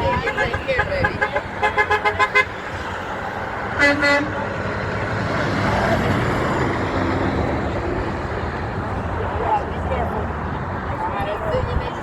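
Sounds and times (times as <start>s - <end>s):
vehicle horn beep: 0.0s - 2.5s, 3.8s - 4.3s
passing road traffic: 0.0s - 12.0s.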